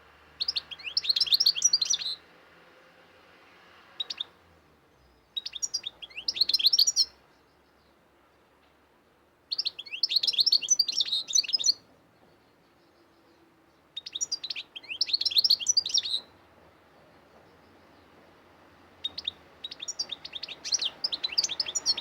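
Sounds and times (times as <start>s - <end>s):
songbird twittering: 0.4s - 2.2s, 4.0s - 4.4s, 5.1s - 8.0s, 9.5s - 16.3s, 19.0s - 22.0s.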